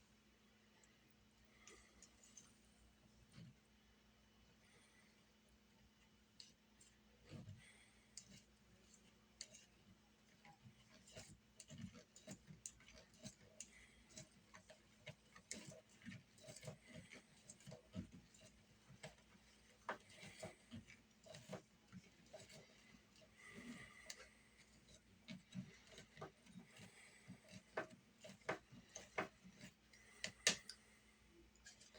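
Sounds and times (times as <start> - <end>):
utensils clicking against a bowl: 10.9 - 30.8.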